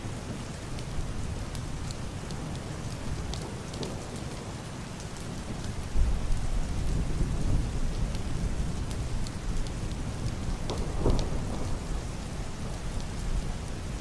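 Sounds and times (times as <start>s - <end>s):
heavy rain on roof and window: 0.0s - 14.0s
muffled thunder rumbling: 10.6s - 12.8s.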